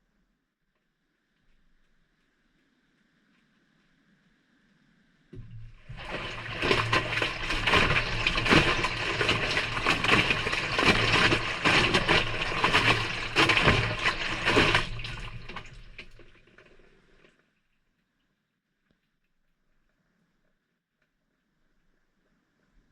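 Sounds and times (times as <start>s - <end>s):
washing machine motor hum: 5.4s - 17.2s
wet laundry sloshing: 5.4s - 17.3s.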